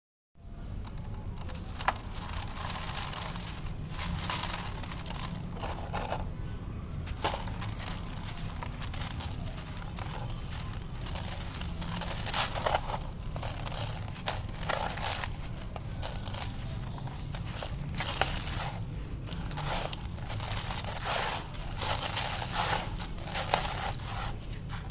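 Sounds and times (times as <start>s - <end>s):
concrete crumbling: 0.8s - 24.9s.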